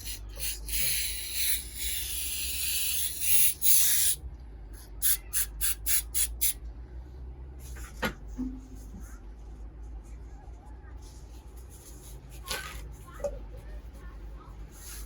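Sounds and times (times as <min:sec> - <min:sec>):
aerosol can spraying: 0:00.0 - 0:04.2, 0:05.0 - 0:06.6.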